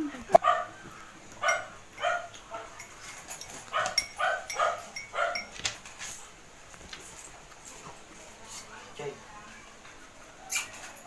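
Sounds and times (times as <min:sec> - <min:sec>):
dog barking: 0:00.3 - 0:00.8, 0:01.4 - 0:02.8, 0:03.7 - 0:05.5.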